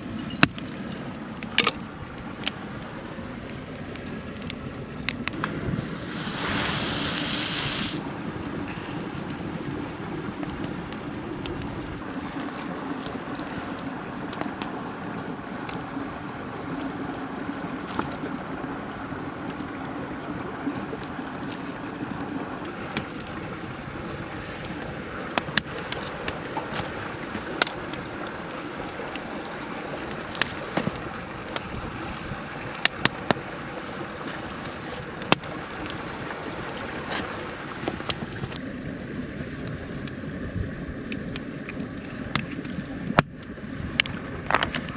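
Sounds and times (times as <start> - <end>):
mountain stream running: 0.0 - 44.9
sharp crackling pops: 3.4 - 8.0.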